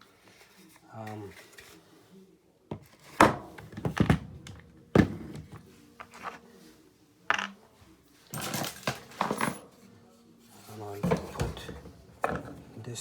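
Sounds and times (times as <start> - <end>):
hard parts knocking and clunking: 3.2 - 5.6.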